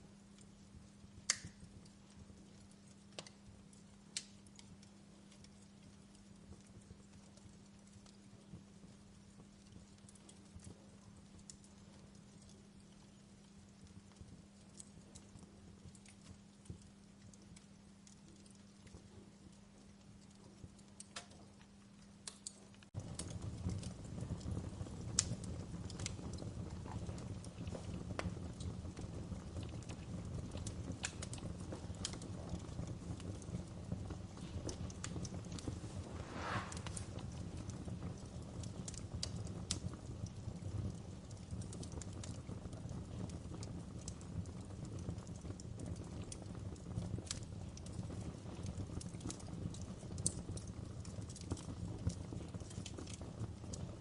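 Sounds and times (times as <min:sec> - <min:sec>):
wood fire crackling: 0:00.0 - 0:54.0
steady low hum: 0:33.6 - 0:38.0
fire hiss: 0:35.5 - 0:38.0
low rumble: 0:35.6 - 0:37.4.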